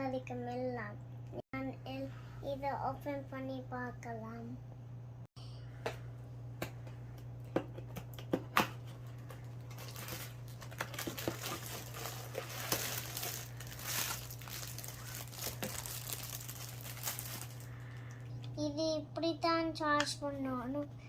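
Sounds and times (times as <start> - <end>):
packaging clicks and crackles: 8.2 - 18.1
packaging crinkling and rustling: 8.8 - 18.0.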